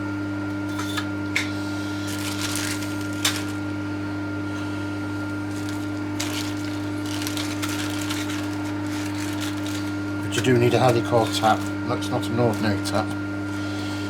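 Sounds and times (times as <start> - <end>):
workshop hum: 0.0 - 14.0
bag rustling: 2.0 - 3.7, 5.4 - 11.8.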